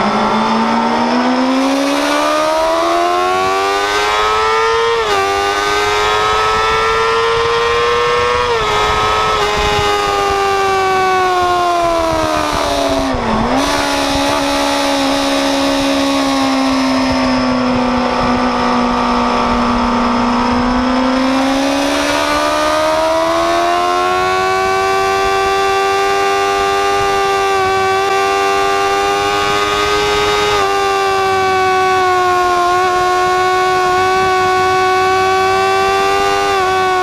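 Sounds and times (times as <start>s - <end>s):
wind rushing: 0.0s - 25.6s
motorcycle engine revving: 0.0s - 37.0s.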